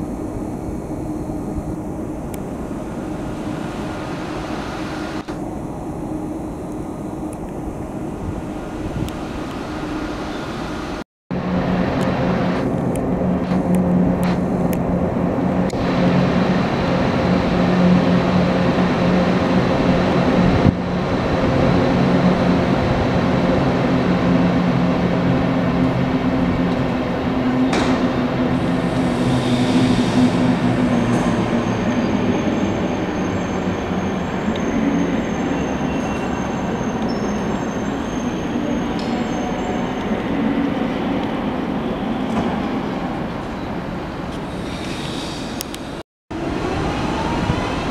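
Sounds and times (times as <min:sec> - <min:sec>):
thin high whine: 0:00.0 - 0:19.5, 0:27.5 - 0:40.9
train running on rails: 0:00.0 - 0:47.9.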